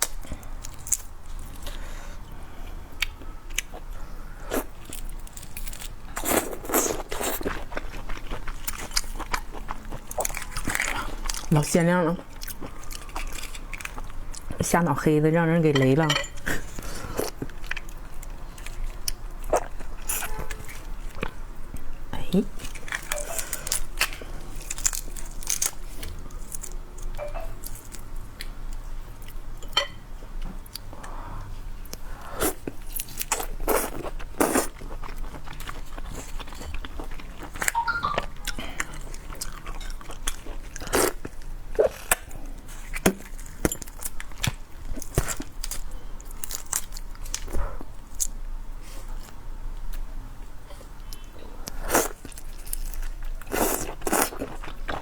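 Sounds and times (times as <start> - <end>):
crunchy chewing: 3.0 - 11.5, 12.2 - 14.5, 22.6 - 29.5, 31.8 - 37.8, 38.4 - 50.0, 50.7 - 55.0.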